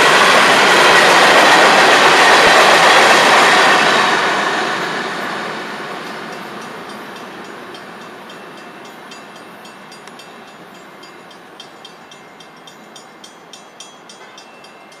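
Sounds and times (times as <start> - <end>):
freight train rumbling: 0.0 - 15.0
fast metallic ticking: 6.3 - 15.0.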